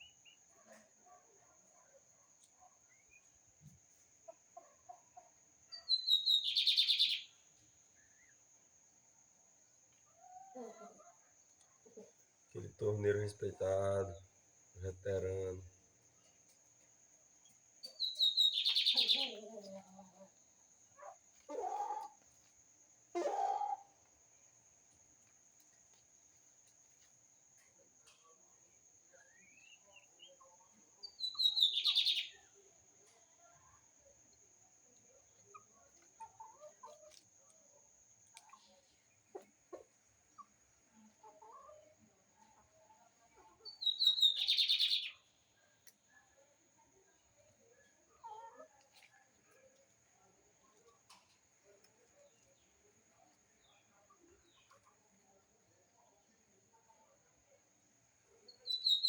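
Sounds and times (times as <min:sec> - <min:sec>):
bird singing whistles and buzzy trill: 0:05.8 - 0:07.3, 0:43.7 - 0:45.2, 0:58.5 - 0:59.0
lower-pitched bird calls: 0:05.8 - 0:07.4, 0:17.9 - 0:19.5, 0:31.1 - 0:32.4, 0:43.7 - 0:45.3.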